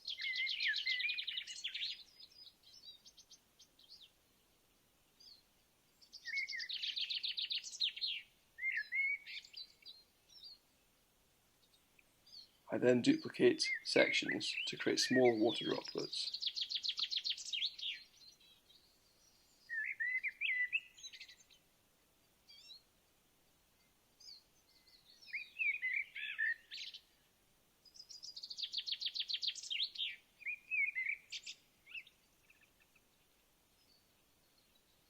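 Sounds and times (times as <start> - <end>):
songbird singing trills: 0.0 - 10.7, 11.6 - 21.6, 22.5 - 22.9, 23.8 - 27.2, 27.8 - 35.0.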